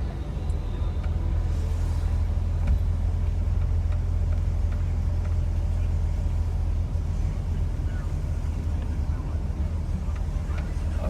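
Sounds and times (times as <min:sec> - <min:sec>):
car engine droning at low speed: 0:00.0 - 0:11.0.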